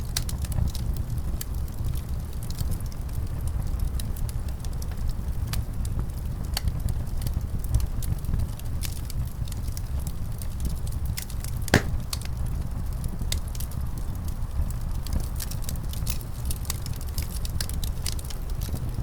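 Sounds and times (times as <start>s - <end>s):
wood fire crackling and popping: 10.7s - 12.3s, 14.8s - 19.0s.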